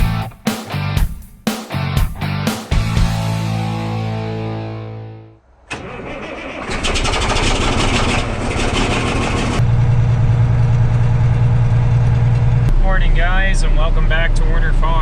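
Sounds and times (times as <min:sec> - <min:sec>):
diesel engine cranking: 0:05.5 - 0:15.0
diesel engine running: 0:05.5 - 0:15.0.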